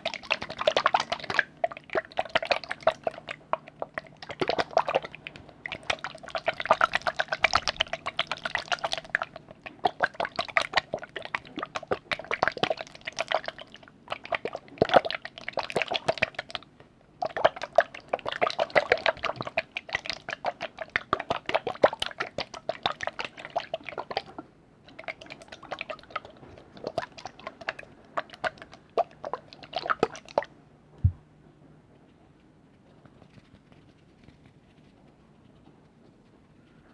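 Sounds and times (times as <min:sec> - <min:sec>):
wet liquid clicks and drips: 0:00.0 - 0:31.2.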